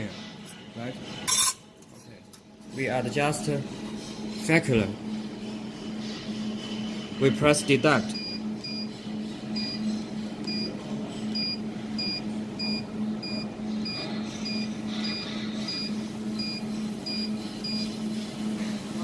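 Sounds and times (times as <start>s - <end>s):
low machine hum: 0.0s - 19.0s
control panel beeps: 8.1s - 8.9s, 10.4s - 10.7s, 11.3s - 17.8s.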